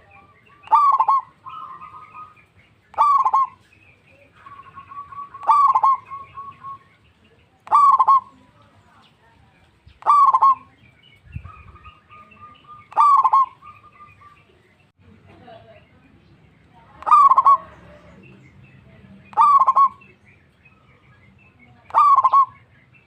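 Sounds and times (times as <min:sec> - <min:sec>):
dove rapid cooing: 0:00.0 - 0:03.6, 0:04.3 - 0:06.8, 0:07.6 - 0:08.4, 0:10.0 - 0:10.7, 0:11.3 - 0:14.3, 0:17.0 - 0:18.1, 0:19.3 - 0:20.1, 0:21.9 - 0:22.6
dove held cooing note: 0:00.0 - 0:06.9, 0:07.6 - 0:08.4, 0:10.0 - 0:14.5, 0:17.0 - 0:18.2, 0:19.2 - 0:20.2, 0:21.9 - 0:22.7.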